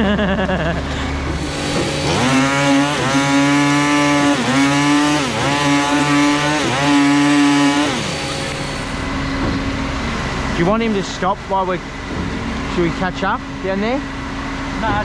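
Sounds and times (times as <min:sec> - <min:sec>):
small petrol engine revving: 0:01.2 - 0:09.1.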